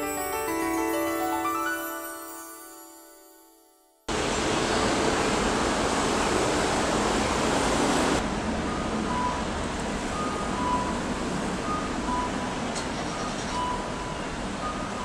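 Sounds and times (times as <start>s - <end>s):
outdoor background rush: 4.1s - 15.0s.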